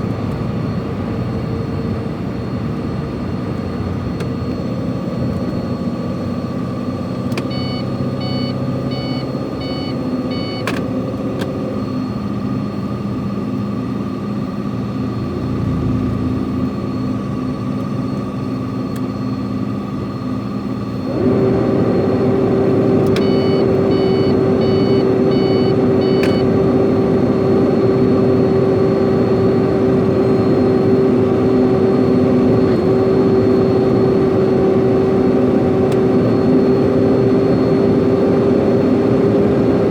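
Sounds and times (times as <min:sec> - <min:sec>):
truck engine running: 0:00.0 - 0:39.9
quick electronic beeps: 0:07.4 - 0:10.6, 0:23.2 - 0:26.5.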